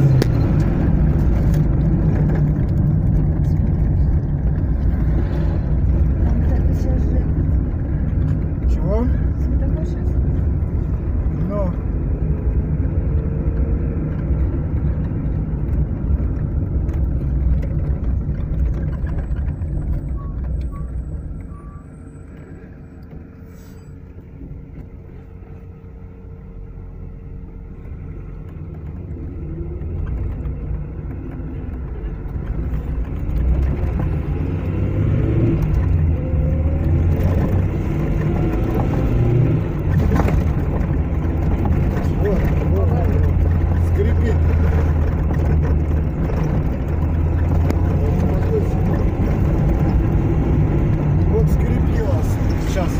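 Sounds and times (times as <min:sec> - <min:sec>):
car engine and road rumble: 0:00.0 - 0:52.9.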